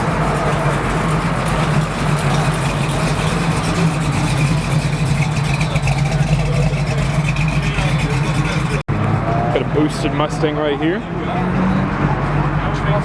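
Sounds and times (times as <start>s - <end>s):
car engine idling: 0.0s - 8.9s.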